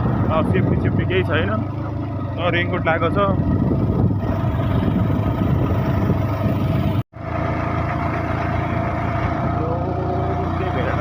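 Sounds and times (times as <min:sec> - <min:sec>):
motorcycle engine running: 0:00.0 - 0:11.0
road noise: 0:00.0 - 0:11.0.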